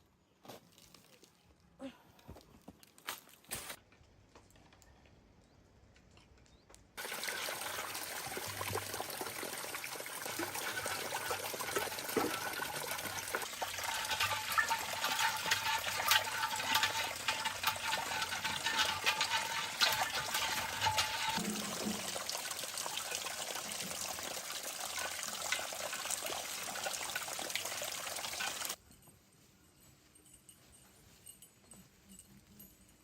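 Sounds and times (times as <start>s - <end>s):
running water splashing: 7.0s - 28.8s.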